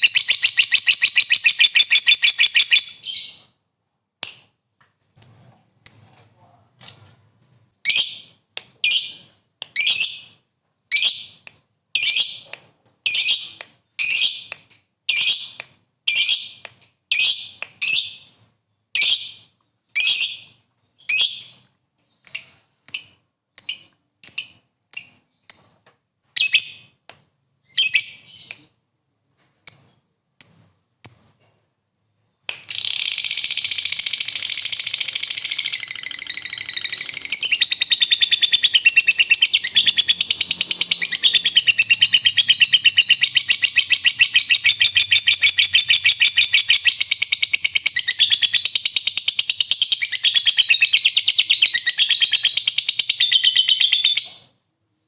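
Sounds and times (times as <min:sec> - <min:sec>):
lovebird rapid chattering trill: 0:32.6 - 0:54.2.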